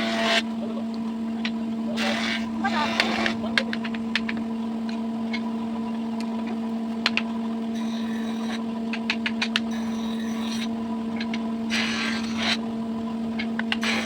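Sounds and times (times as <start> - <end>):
machine motor humming: 0.0 - 14.0
sharp knocks and clicks: 3.0 - 5.5, 6.5 - 7.3, 8.5 - 9.7.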